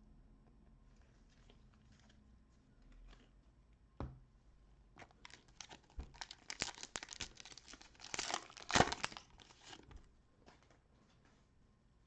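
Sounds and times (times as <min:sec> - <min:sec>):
cellophane wrapper crinkling and tearing: 0:05.0 - 0:09.9.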